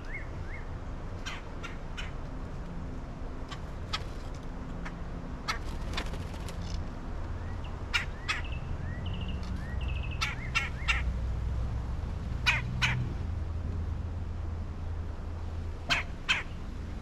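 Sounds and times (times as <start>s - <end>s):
birds calling: 7.4s - 11.1s.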